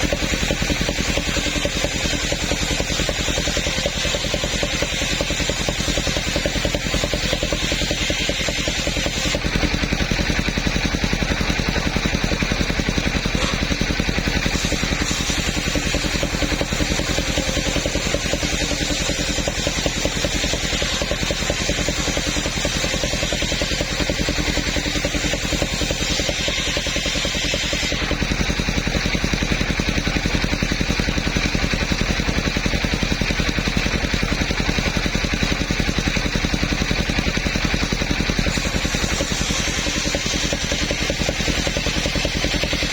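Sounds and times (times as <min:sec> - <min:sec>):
hiss: 0:00.0 - 0:09.4, 0:13.3 - 0:13.7, 0:14.3 - 0:28.6, 0:38.4 - 0:42.9
sawmill engine running: 0:00.0 - 0:42.9.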